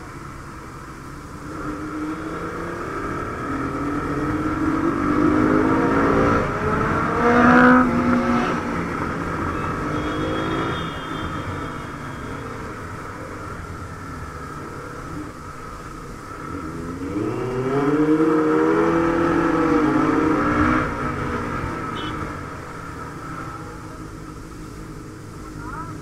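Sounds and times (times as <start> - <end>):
wind and road noise: 0.0 - 26.0
motorcycle engine accelerating: 1.6 - 11.0.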